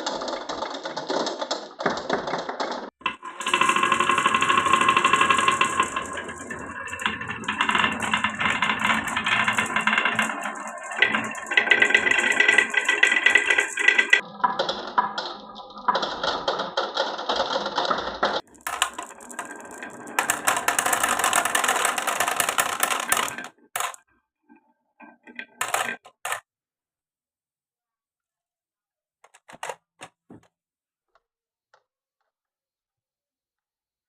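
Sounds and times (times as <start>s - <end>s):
marbles clattering down wooden run: 0.0s - 24.0s, 25.4s - 26.4s, 29.3s - 29.8s.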